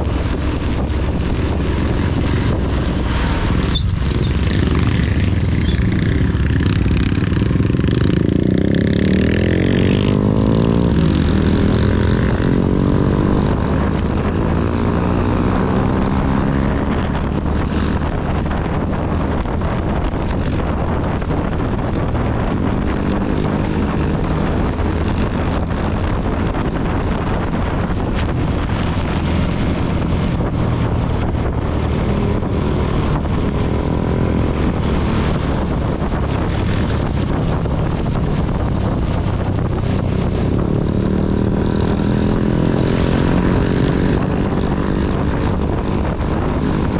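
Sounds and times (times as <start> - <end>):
motorcycle engine accelerating: 0.0 - 46.9
wind and rain noise: 0.0 - 46.9.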